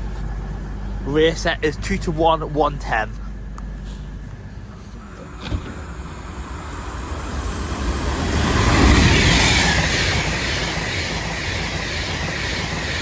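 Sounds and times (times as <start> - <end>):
electric train passing at speed: 4.4 - 13.0.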